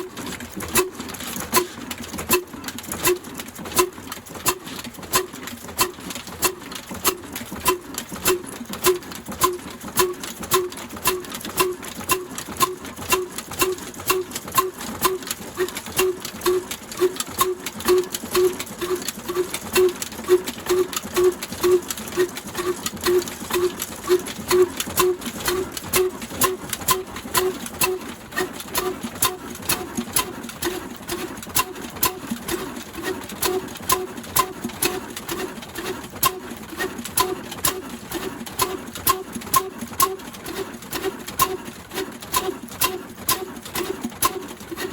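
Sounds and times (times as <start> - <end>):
diesel engine running steadily: 0.0 - 44.9
sharp irregular clicks: 0.2 - 32.6, 42.3 - 44.6.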